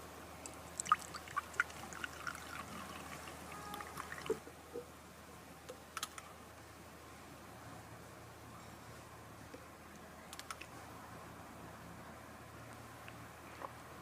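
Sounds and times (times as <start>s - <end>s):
liquid pouring: 0.4s - 4.4s.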